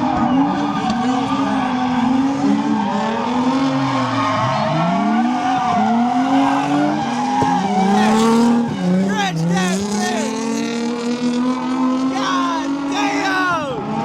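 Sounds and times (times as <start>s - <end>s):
tire squeal: 0.0s - 10.5s
car engines revving: 0.0s - 14.0s.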